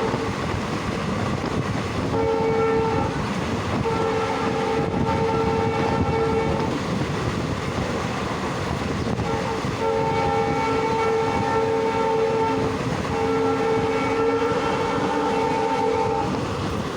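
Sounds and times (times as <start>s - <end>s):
locomotive air horn blasts: 0.0s - 0.5s, 2.0s - 6.8s, 9.0s - 16.5s
moving train rumble: 0.0s - 16.9s.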